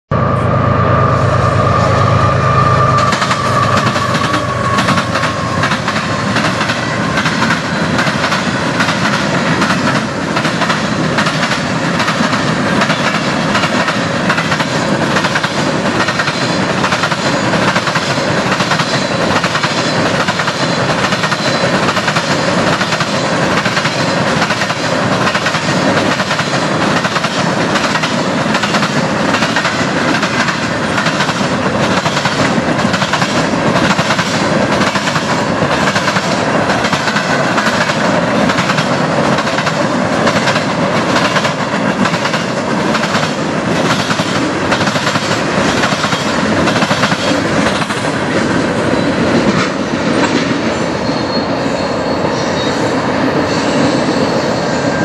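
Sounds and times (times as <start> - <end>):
steel wheels rumbling on rail: 0.1 - 55.0
wheels clacking over track joints: 3.0 - 48.6
faint wheel squeal: 50.8 - 55.0.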